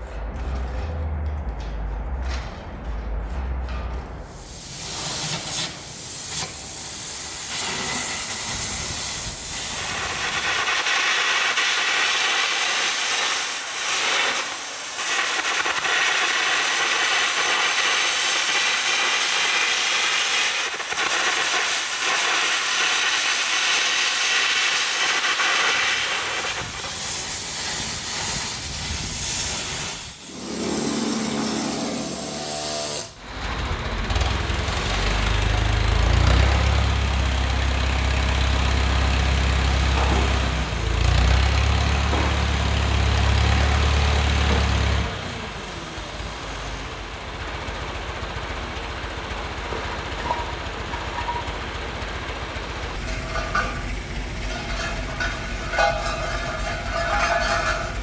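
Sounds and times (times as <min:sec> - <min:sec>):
arc gouging air jet hiss: 0:04.3 - 0:33.2.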